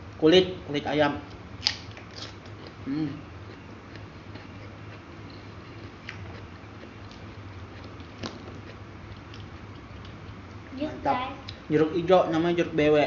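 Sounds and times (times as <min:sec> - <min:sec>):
steady low hum: 0:00.0 - 0:13.0
person chewing food: 0:01.6 - 0:10.7.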